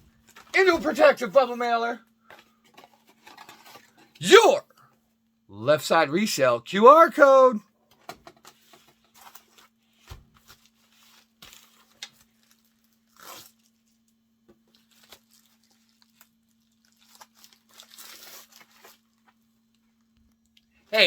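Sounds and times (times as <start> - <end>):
plastic mailer crinkling: 14.7 - 19.3.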